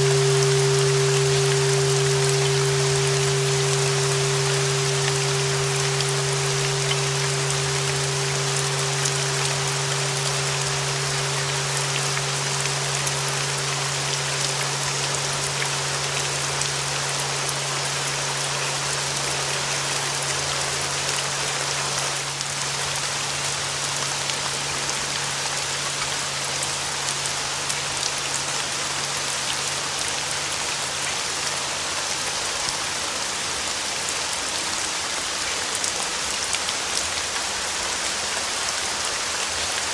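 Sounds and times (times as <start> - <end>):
ringing bell tone: 0.0 - 22.1
low hum: 0.0 - 22.3
steady rain: 0.0 - 39.9.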